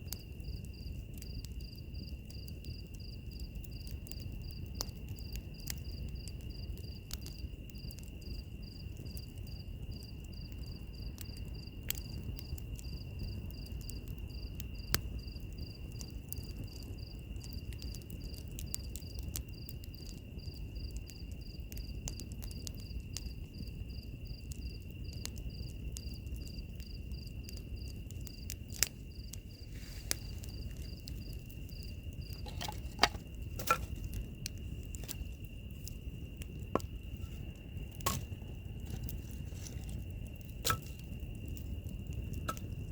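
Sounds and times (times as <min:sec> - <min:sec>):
wood fire crackling: 0:00.0 - 0:42.9
sharp pops of fire: 0:24.6 - 0:42.9.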